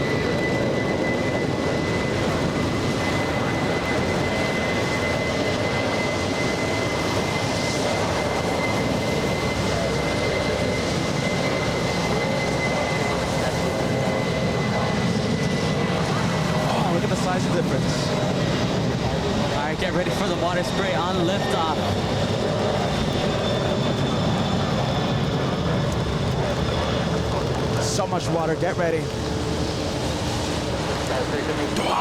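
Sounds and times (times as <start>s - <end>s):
jet engine whistle and rumble: 0.0s - 32.0s.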